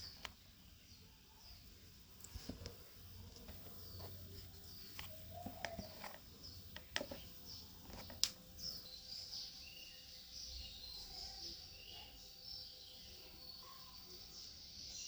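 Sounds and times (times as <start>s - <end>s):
faint birds chirping: 0.0s - 15.0s
sharp clicks: 7.9s - 8.4s.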